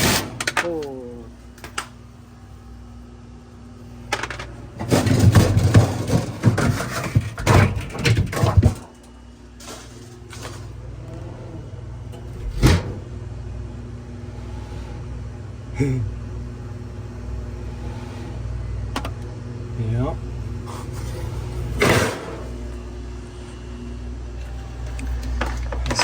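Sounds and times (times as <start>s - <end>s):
fridge humming: 0.0s - 26.0s
parts clattering and knocking: 4.1s - 10.7s, 24.4s - 26.0s.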